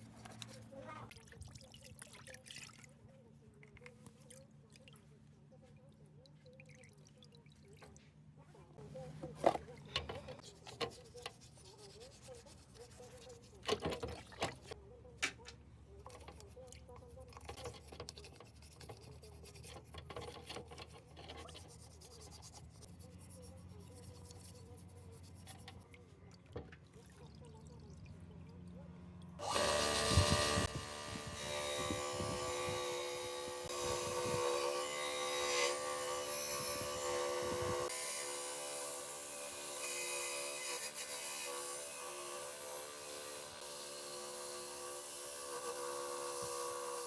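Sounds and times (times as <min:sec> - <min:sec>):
tools scraping engine parts: 0:09.4 - 0:14.8, 0:16.0 - 0:25.9
power tool whining: 0:29.4 - 0:47.0.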